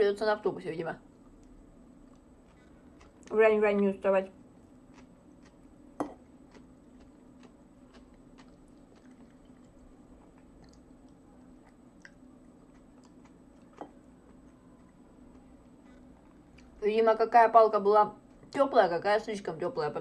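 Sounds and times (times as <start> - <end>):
chewing: 1.2 - 3.4, 4.6 - 16.8.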